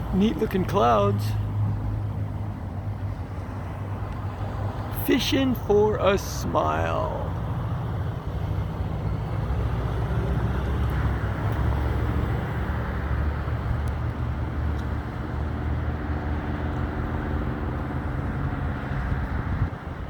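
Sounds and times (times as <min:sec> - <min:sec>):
wind buffeting microphone: 0:17.0 - 0:20.0.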